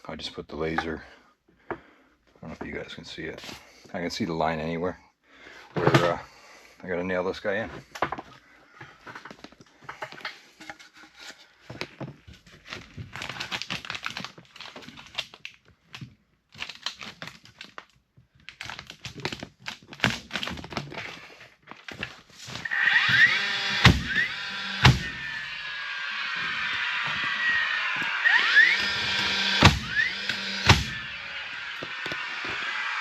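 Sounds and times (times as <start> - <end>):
rustling and scraping lumber: 0.6 - 3.9, 7.5 - 15.3, 18.6 - 33.0.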